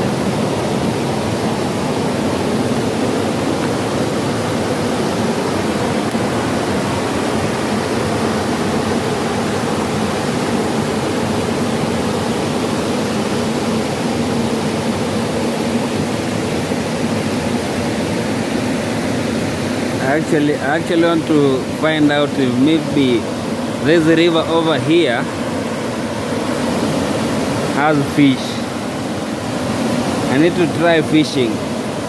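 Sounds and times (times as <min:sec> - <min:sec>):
stream water rushing: 0:00.0 - 0:32.0.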